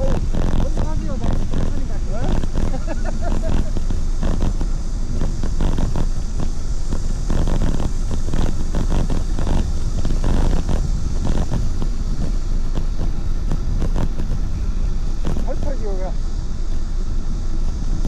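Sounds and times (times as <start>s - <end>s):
road noise: 0.0s - 18.0s
wind buffeting microphone: 0.0s - 18.0s.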